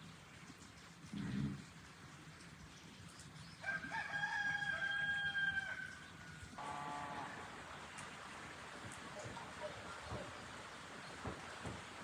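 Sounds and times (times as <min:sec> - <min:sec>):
rooster crowing: 0:03.6 - 0:06.0.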